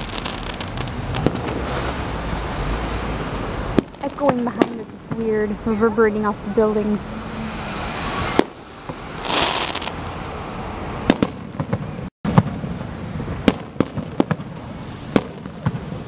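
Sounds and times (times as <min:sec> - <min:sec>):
firework bangs and cracks: 0:00.0 - 0:02.3, 0:03.6 - 0:05.4, 0:08.2 - 0:10.0, 0:11.0 - 0:16.0
firework hissing rush: 0:00.0 - 0:04.0, 0:07.7 - 0:10.2.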